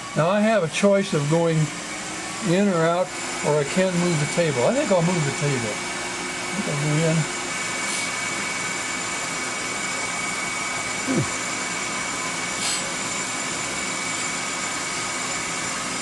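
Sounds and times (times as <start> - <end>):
grinder hissing and whining: 0.0 - 16.0.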